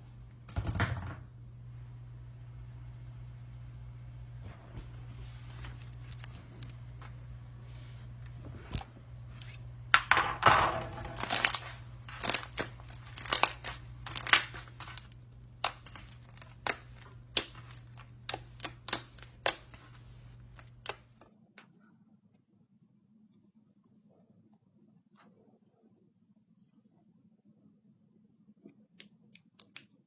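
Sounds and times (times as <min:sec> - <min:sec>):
steady low hum: 0:00.0 - 0:29.5.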